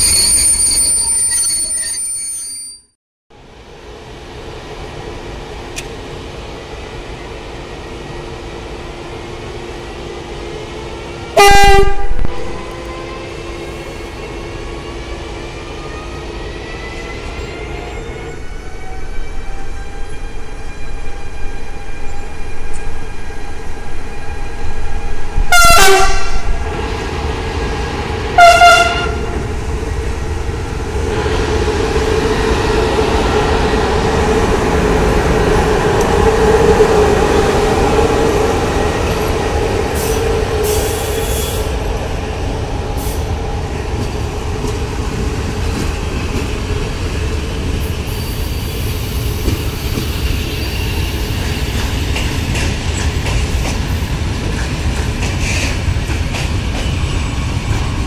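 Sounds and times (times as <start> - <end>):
trains rumbling and clattering: 3.3 - 58.0
locomotive horn blast: 11.4 - 14.8, 25.5 - 26.5, 28.4 - 29.4.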